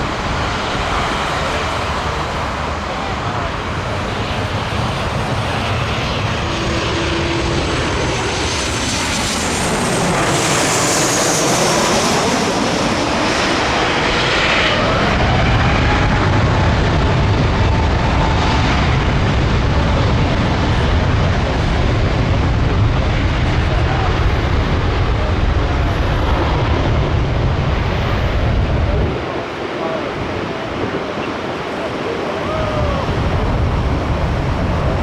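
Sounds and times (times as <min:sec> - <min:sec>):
jet engine whine: 0:00.0 - 0:35.0
low rumble: 0:32.6 - 0:35.0.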